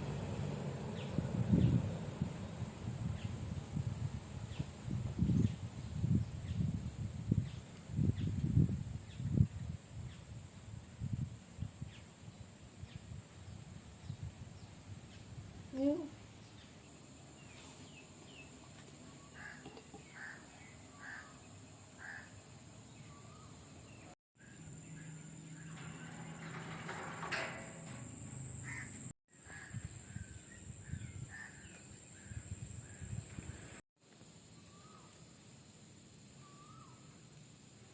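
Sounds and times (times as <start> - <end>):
birds calling: 16.4 - 33.8
low rustling: 24.8 - 29.1
bumping noises: 25.6 - 29.1.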